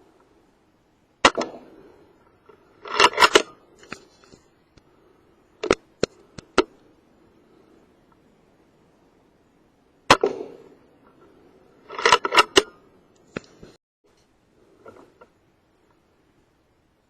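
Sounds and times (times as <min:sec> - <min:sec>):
air rifle shot crack: 0:10.1 - 0:10.8.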